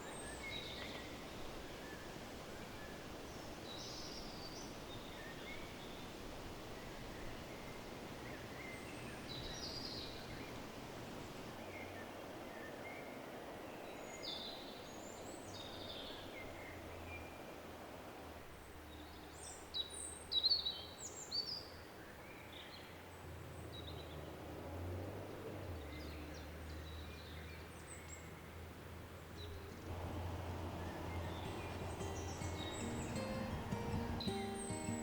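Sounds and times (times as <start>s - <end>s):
small birds chirping: 0.0s - 10.6s, 29.3s - 35.0s
outdoor ambience hiss: 0.0s - 35.0s.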